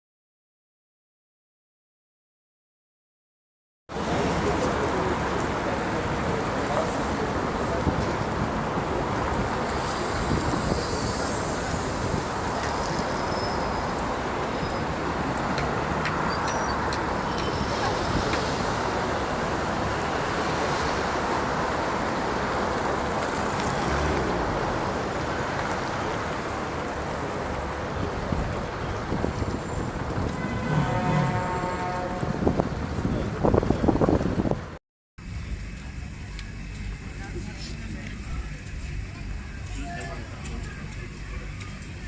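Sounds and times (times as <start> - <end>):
voices: 4.0 - 29.6, 35.8 - 42.0
rushing wind and water: 4.0 - 34.8
wind buffeting microphone: 28.0 - 34.8.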